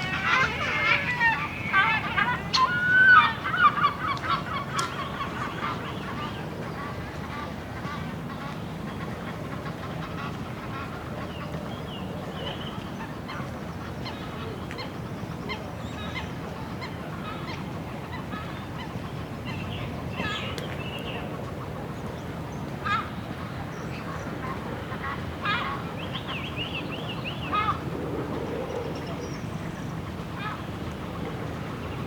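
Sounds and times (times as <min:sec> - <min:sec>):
geese honking: 0:00.0 - 0:03.9
outdoor background noise: 0:00.0 - 0:32.0.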